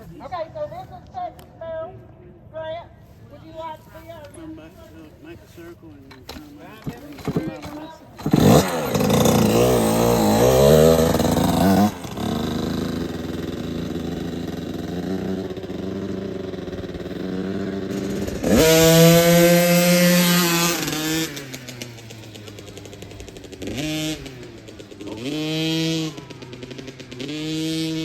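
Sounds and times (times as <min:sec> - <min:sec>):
dirt bike engine revving: 0:06.3 - 0:28.0.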